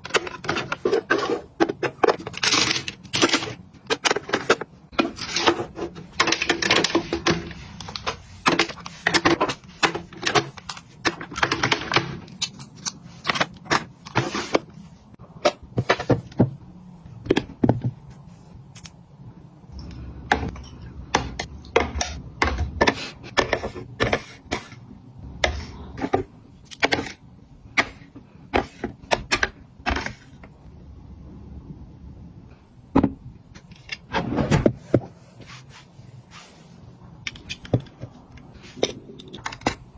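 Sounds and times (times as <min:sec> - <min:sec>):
plastic containers clicking and tapping: 0:00.0 - 0:12.5, 0:20.2 - 0:24.8.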